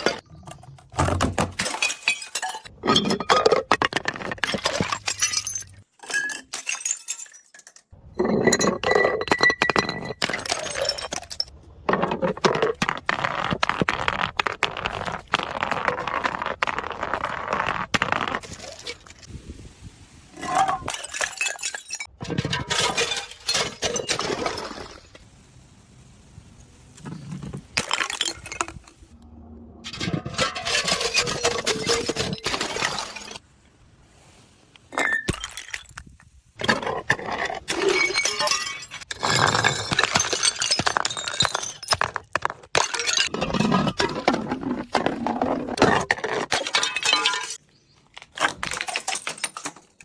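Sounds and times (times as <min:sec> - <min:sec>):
glass bottles smashing: 0:01.2 - 0:11.5, 0:20.8 - 0:25.1, 0:27.4 - 0:28.9, 0:29.9 - 0:33.4, 0:34.9 - 0:36.1, 0:37.6 - 0:47.6, 0:48.4 - 0:50.0
glass shards clinking: 0:29.9 - 0:33.4, 0:46.5 - 0:47.6.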